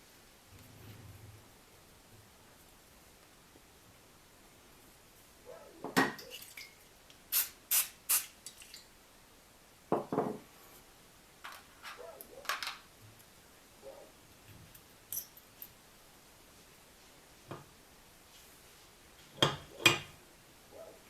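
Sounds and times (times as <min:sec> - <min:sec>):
metal parts and tools clinking: 0:14.8 - 0:15.7.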